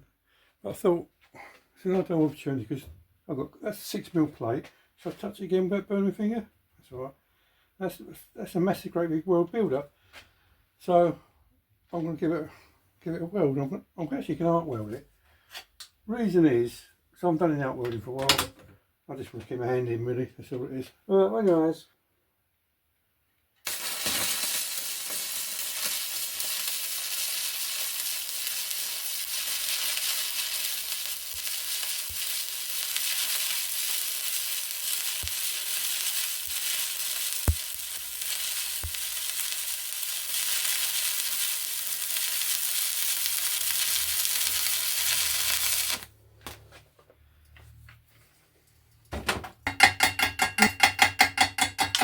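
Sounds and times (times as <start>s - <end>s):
welding arc crackling: 23.6s - 46.1s.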